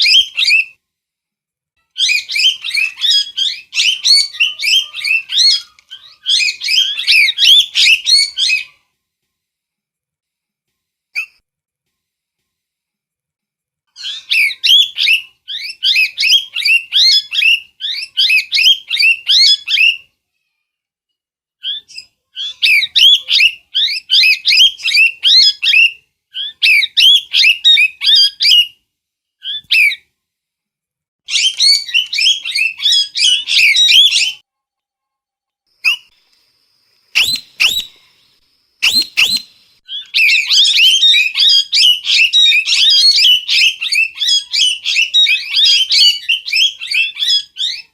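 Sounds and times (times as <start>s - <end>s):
parrot chirping whistles: 0.0s - 0.8s, 2.0s - 8.8s, 14.0s - 20.0s, 21.6s - 28.8s, 29.4s - 30.0s, 31.3s - 34.4s, 37.2s - 38.1s, 38.8s - 47.9s.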